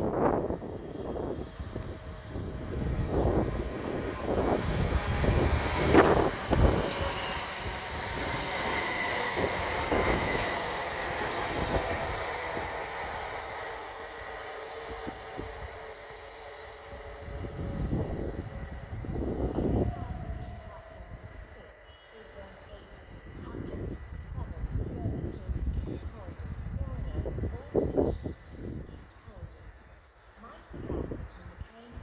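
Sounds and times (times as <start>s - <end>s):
train thumps: 0.0s - 20.5s
thin whine: 0.0s - 24.3s
electric train rumbling: 0.0s - 32.0s.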